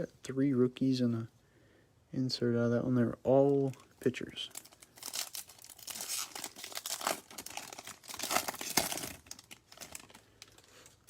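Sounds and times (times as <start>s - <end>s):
foil wrapper tearing and crinkling: 4.5s - 11.0s.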